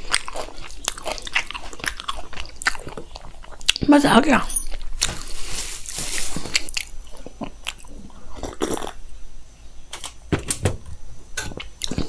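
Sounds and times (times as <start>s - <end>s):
chewing food: 0.0s - 4.0s, 6.2s - 9.0s, 11.6s - 12.0s.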